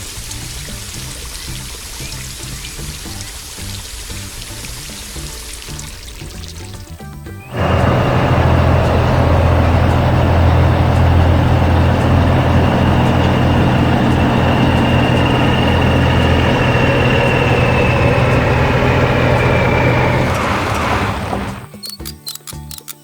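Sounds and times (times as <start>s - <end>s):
heavy machine engine running: 7.5s - 21.7s.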